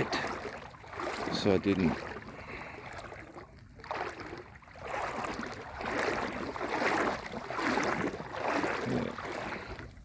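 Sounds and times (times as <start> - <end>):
legs wading through water: 0.0 - 10.0
water splashing: 0.0 - 10.0.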